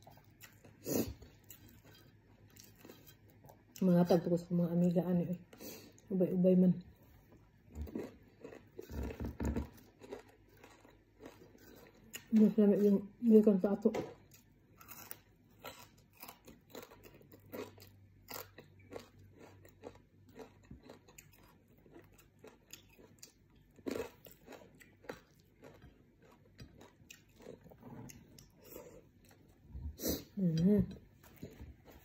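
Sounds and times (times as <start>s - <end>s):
person chewing crunchy food: 0.0s - 3.8s, 7.3s - 12.3s, 14.2s - 30.1s, 31.0s - 32.0s.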